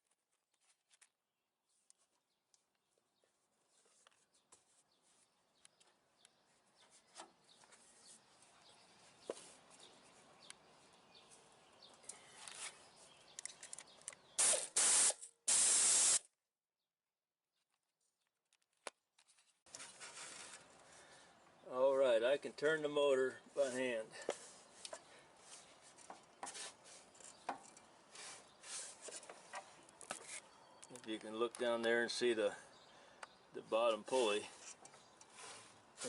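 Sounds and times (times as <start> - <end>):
loud hissing bursts: 14.4 - 16.2.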